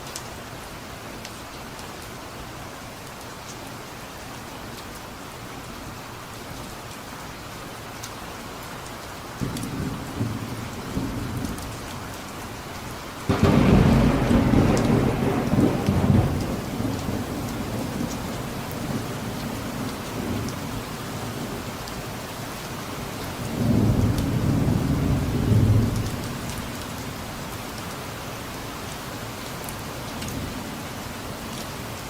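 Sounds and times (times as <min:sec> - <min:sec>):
steady rain falling: 0:00.0 - 0:32.0
thunder clap: 0:13.3 - 0:18.2
thunder rumbling: 0:13.3 - 0:20.7, 0:23.5 - 0:26.3.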